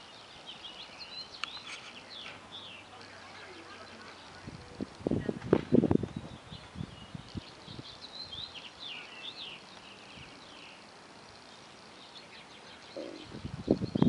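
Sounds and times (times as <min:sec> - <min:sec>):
faint background noise: 0:00.0 - 0:14.0
small birds chirping: 0:00.0 - 0:14.0.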